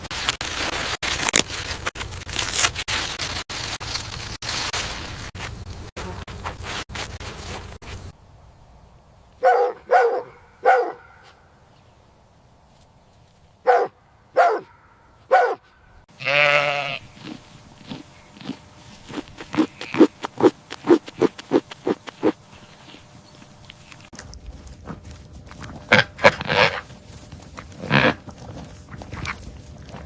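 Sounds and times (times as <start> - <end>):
farm animal calls: 16.2 - 20.3, 25.6 - 30.0.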